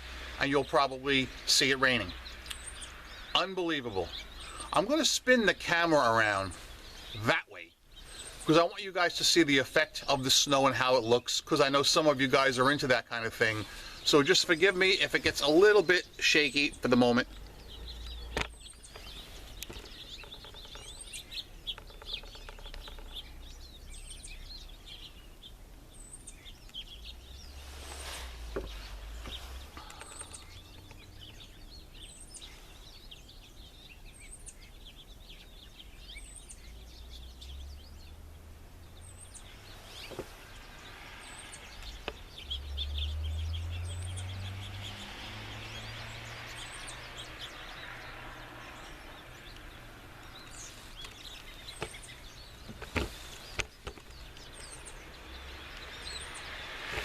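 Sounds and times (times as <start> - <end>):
small birds chirping: 0.0 - 57.0
low outdoor rumble: 13.4 - 32.8.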